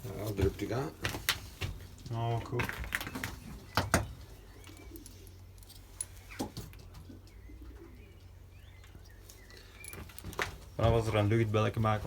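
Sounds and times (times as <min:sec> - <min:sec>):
pigeons cooing: 0:02.4 - 0:11.3.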